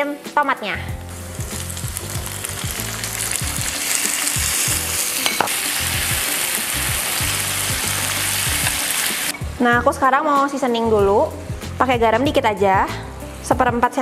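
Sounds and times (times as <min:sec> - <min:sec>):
tomatoes sizzling in hot oil: 0:00.9 - 0:09.8.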